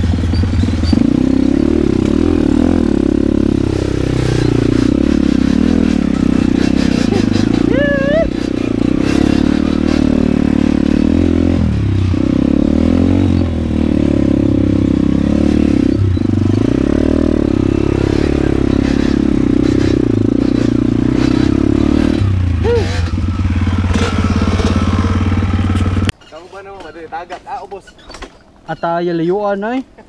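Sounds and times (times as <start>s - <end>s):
dirt bike engine revving: 0.0s - 26.1s.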